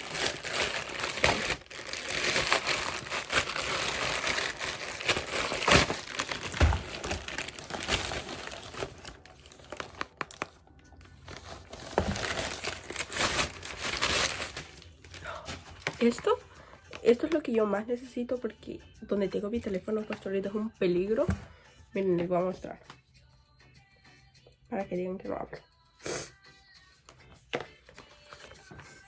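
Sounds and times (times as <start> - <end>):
packaging crinkling and tearing: 0.0 - 16.1.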